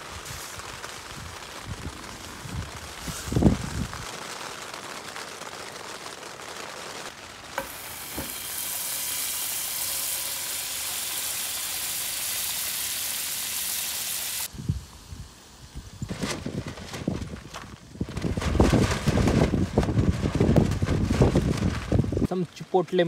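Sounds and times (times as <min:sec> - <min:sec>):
fries sizzling in hot oil: 0:00.0 - 0:05.6, 0:07.1 - 0:16.1.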